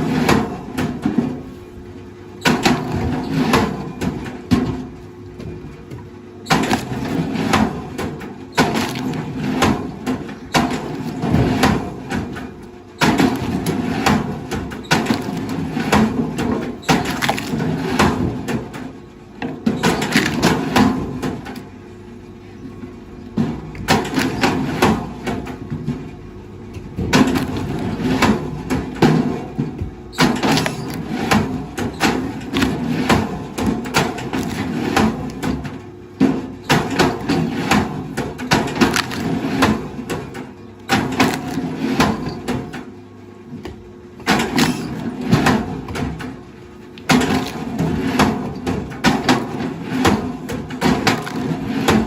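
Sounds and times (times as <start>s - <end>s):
wood cracking and knocking: 5.4s - 21.7s, 26.8s - 42.9s, 43.6s - 46.4s, 47.0s - 52.0s.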